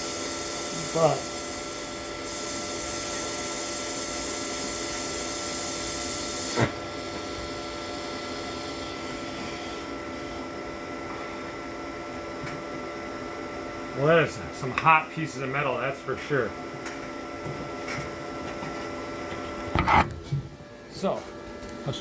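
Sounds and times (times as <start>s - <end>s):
welding arc hissing and humming: 0.0s - 16.6s.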